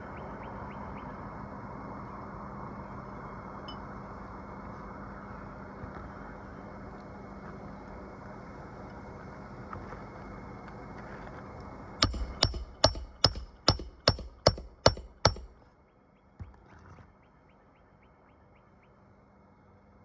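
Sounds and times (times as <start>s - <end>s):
hammer driving a nail: 12.0s - 15.6s.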